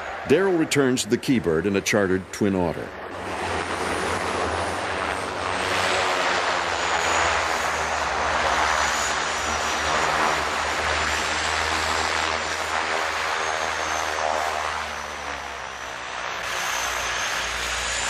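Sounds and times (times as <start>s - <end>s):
high turbine whine: 0.0s - 18.0s
propeller drone: 0.0s - 18.0s.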